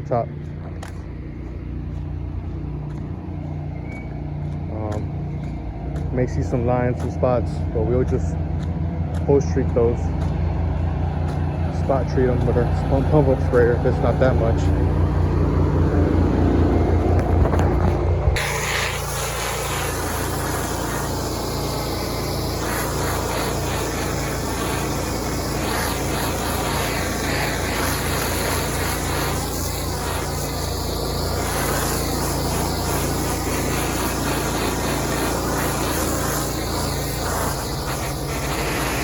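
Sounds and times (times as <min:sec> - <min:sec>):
pressure washer engine running: 0:04.4 - 0:39.0
hiss of water spray: 0:18.4 - 0:39.0.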